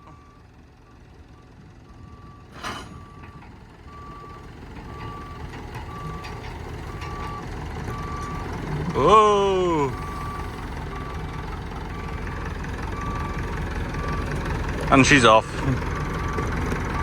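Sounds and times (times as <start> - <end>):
engine running: 0.0 - 17.0
reversing alarm beeping: 1.4 - 8.5, 9.9 - 14.4, 16.0 - 17.0.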